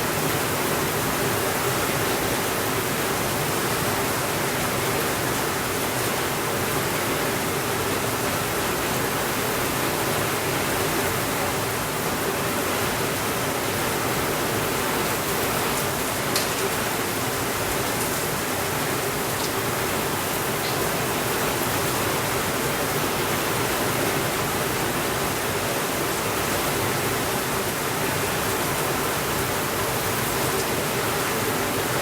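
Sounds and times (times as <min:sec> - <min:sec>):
steady rainfall: 0:00.0 - 0:32.0.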